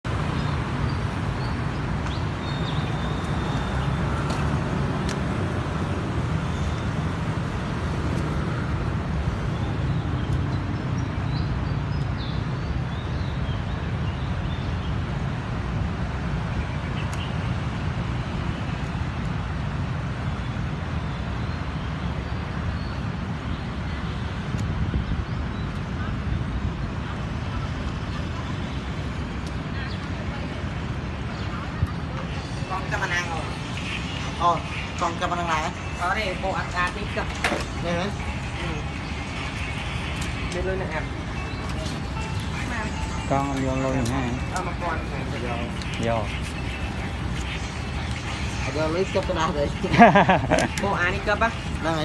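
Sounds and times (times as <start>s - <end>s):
outdoor rumble and hiss: 13.5s - 52.0s.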